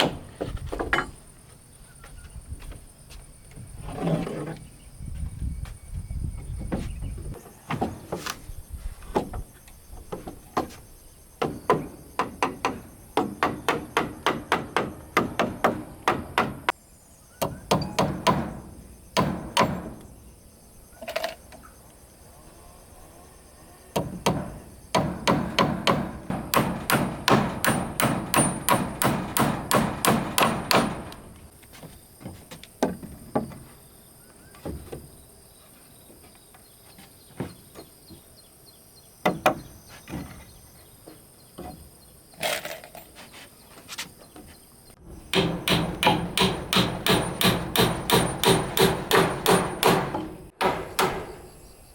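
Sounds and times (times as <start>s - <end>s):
hammer striking wood: 11.4s - 16.7s, 17.4s - 20.0s, 24.0s - 31.2s, 39.2s - 39.6s, 45.3s - 51.5s.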